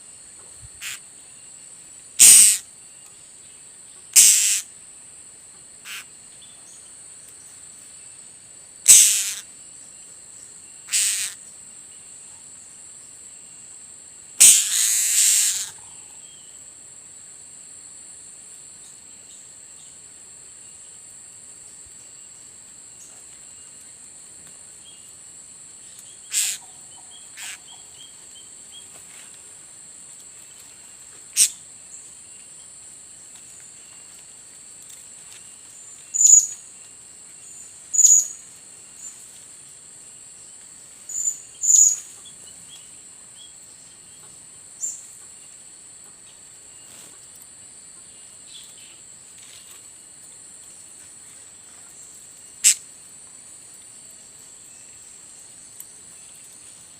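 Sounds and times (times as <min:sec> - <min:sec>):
high insect drone: 0:00.0 - 0:56.9
high-pitched parrot calls: 0:00.8 - 0:01.0, 0:02.2 - 0:02.6, 0:04.2 - 0:04.6, 0:08.9 - 0:09.4, 0:10.9 - 0:11.4, 0:14.4 - 0:15.8, 0:26.3 - 0:26.6.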